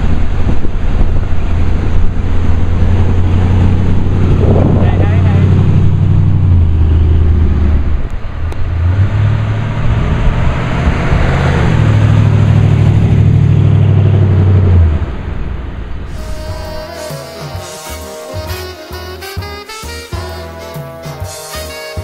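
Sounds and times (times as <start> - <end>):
car engine driving past: 0.8 - 18.3.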